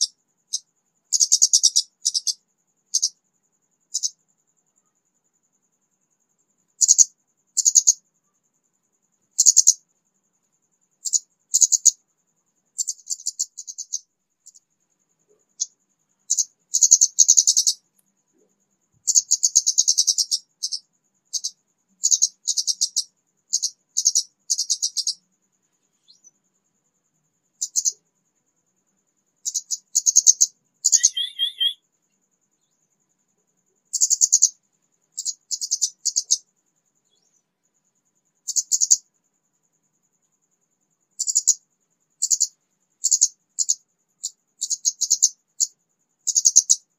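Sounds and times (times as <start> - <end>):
bird chirping high rapid trills: 30.8 - 31.8
lower wavering bird phrase: 30.9 - 31.8.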